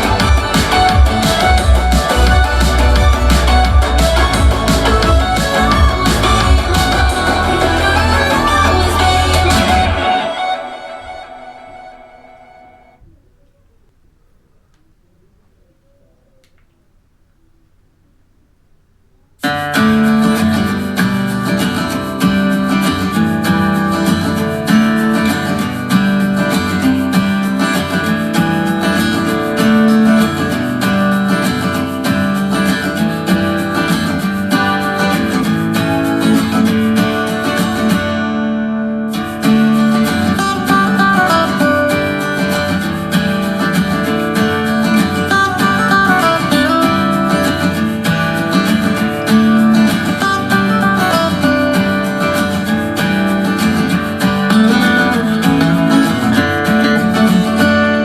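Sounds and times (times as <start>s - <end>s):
steady beat with bass: 0.0s - 10.2s
strummed acoustic guitar music: 0.0s - 13.0s, 19.4s - 58.0s.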